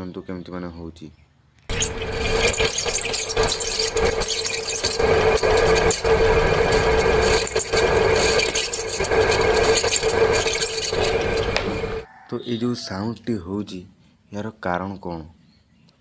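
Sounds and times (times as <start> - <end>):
ceiling fan grinding rattle: 1.7 - 12.0
motor bearing squealing: 1.7 - 12.1.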